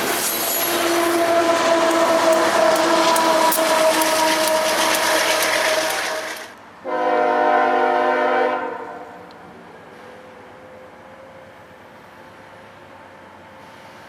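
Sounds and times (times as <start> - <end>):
wheels squealing: 0.0 - 6.6
freight train rail and wheel noise: 0.0 - 14.0
locomotive horn chord: 0.7 - 9.3
wheel clicks: 2.3 - 6.6.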